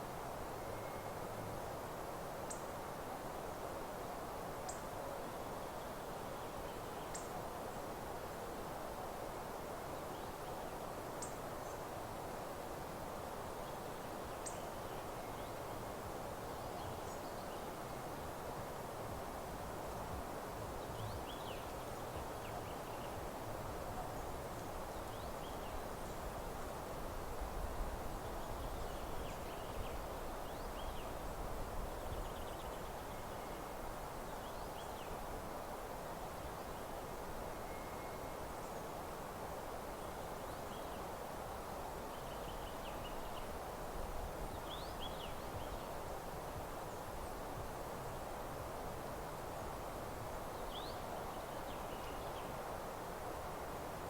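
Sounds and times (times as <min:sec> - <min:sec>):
steady hiss: 0:00.0 - 0:54.0
faint high bird chirps: 0:37.6 - 0:38.4.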